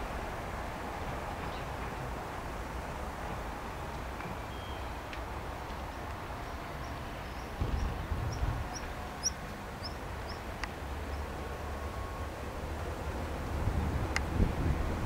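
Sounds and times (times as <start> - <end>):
small bird chirping: 7.2 - 10.4.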